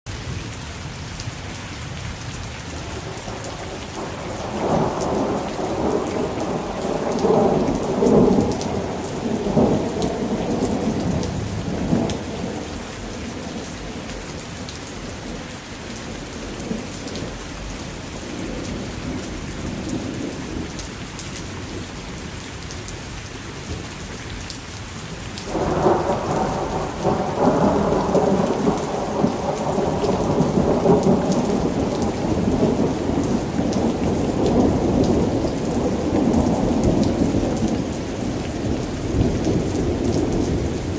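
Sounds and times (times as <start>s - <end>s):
heavy rain falling: 0.1s - 40.9s
thunder rumbling: 2.9s - 14.7s, 25.4s - 40.9s.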